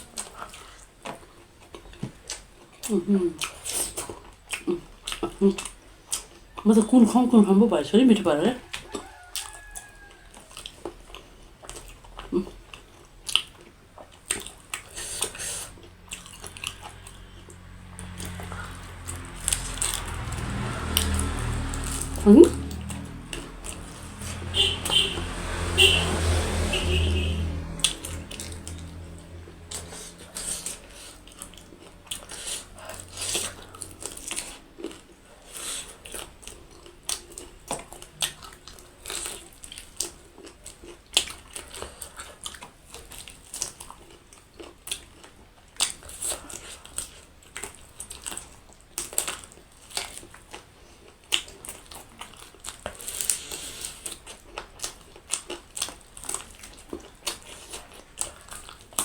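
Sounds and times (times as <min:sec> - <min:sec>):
crunchy bites and chewing: 0:08.7 - 0:24.2, 0:27.8 - 0:59.0.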